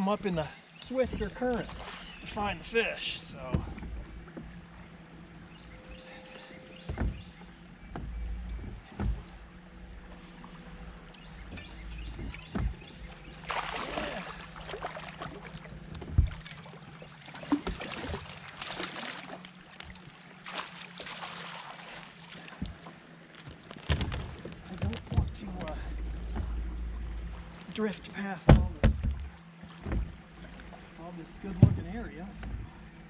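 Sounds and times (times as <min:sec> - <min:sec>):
knocks on boat: 0:00.8 - 0:02.6, 0:03.3 - 0:04.7, 0:06.7 - 0:09.6, 0:11.1 - 0:18.7, 0:23.4 - 0:27.2, 0:28.4 - 0:30.7, 0:31.4 - 0:32.7
water splashing against boat hull: 0:00.8 - 0:33.0.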